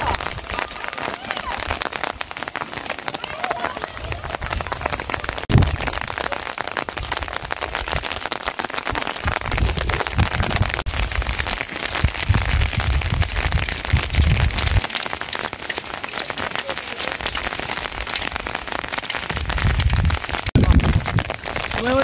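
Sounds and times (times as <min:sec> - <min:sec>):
heavy rain falling: 0:00.0 - 0:22.0
low thumps: 0:05.3 - 0:06.2.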